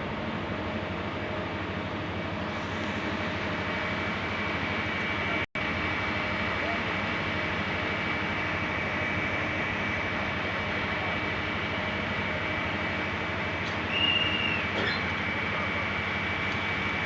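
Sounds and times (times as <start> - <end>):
train rumbling with whine: 0.0 - 17.0
high-pitched train squeal: 13.7 - 16.9.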